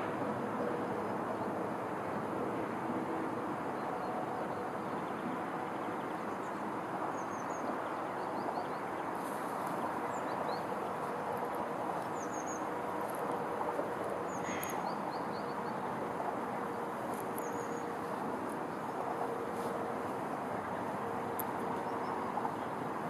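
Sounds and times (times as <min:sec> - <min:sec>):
rushing outdoor background: 0:00.0 - 0:23.0
small birds chirping: 0:14.3 - 0:15.9.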